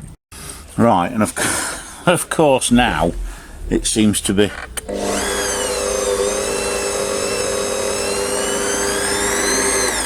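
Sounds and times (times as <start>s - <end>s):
stand mixer motor whining: 4.8s - 10.0s.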